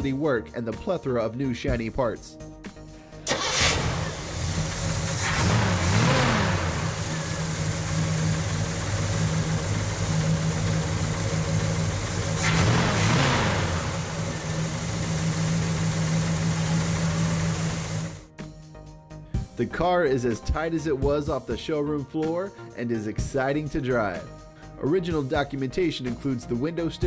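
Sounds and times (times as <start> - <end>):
car engine idling and revving: 3.1 - 18.3.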